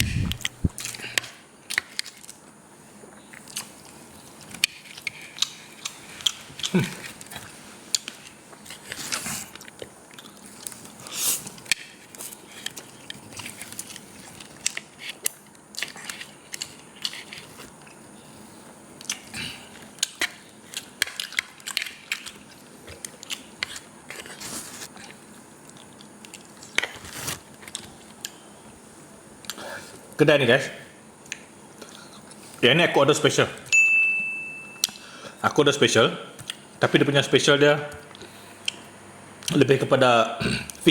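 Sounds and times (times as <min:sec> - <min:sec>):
noodle slurping: 0:00.0 - 0:01.1.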